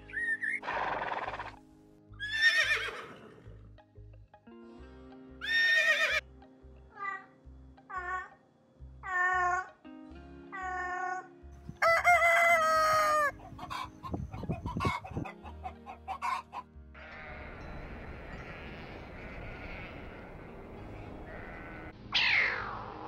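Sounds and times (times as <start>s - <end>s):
soft music with low beat: 0.0s - 18.6s
rooster crowing: 11.8s - 13.9s
chickens clucking: 11.8s - 16.7s.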